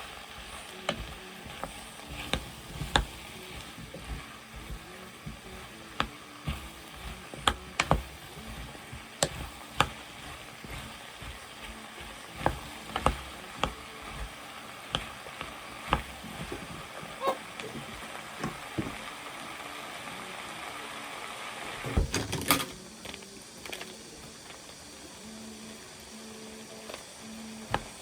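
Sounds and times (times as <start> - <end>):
utensil clacking against pan: 0.0 - 19.0
vegetables sizzling in a pan: 0.0 - 28.0.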